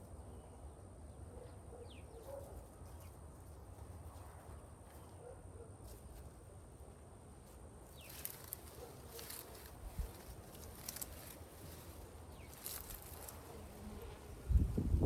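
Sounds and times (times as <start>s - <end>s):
bird chirps: 0.2s - 3.2s
soil scraping and crunching: 5.8s - 14.9s.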